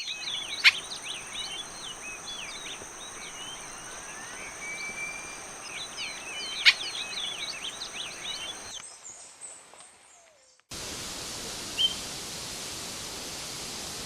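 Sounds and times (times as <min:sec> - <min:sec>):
bird chattering: 0:00.0 - 0:08.7
high insect drone: 0:00.0 - 0:08.8
steady hiss: 0:00.0 - 0:08.8, 0:10.7 - 0:14.0.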